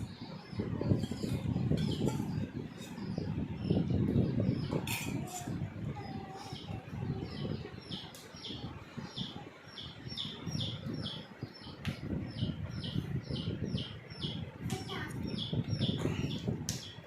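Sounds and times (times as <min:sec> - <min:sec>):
parakeets chirping: 0:06.0 - 0:17.0.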